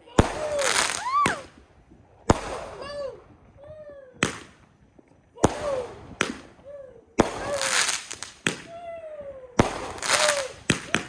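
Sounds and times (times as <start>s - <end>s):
firework bangs: 0.1s - 1.6s, 2.2s - 3.1s, 4.2s - 4.7s, 5.4s - 6.6s, 7.2s - 8.8s, 9.6s - 11.0s
firework whistling tones: 0.2s - 3.6s, 5.5s - 11.0s.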